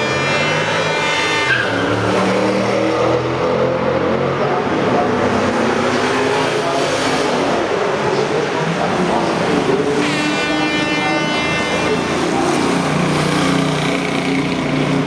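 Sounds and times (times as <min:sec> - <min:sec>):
high horn-like tone: 0:00.0 - 0:01.9, 0:10.0 - 0:12.2
cars driving past: 0:00.0 - 0:10.0, 0:11.6 - 0:15.0.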